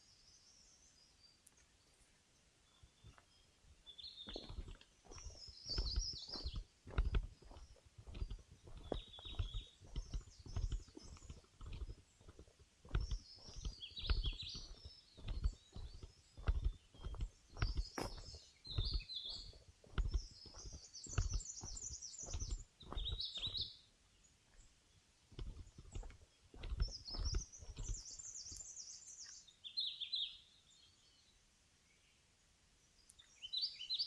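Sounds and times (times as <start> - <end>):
birds singing and chirping: 2.6 - 31.3, 33.0 - 34.0
footsteps on forest trail: 2.8 - 23.8, 25.3 - 30.2.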